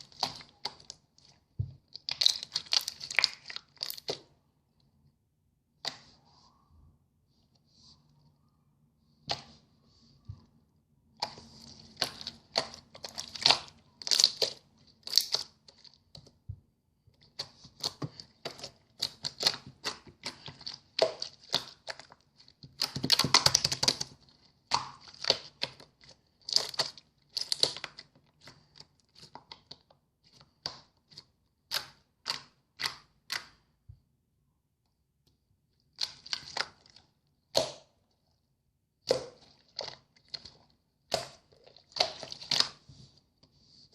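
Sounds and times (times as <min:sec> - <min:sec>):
hands squishing slime: 0:00.0 - 0:04.4, 0:10.4 - 0:16.5, 0:17.2 - 0:33.8, 0:35.8 - 0:38.4, 0:39.0 - 0:43.9.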